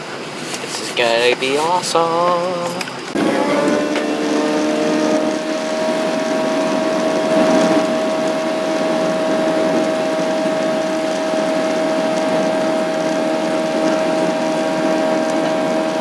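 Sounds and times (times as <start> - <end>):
steady whine: 0.0 - 12.1
airliner cabin drone: 0.0 - 16.0.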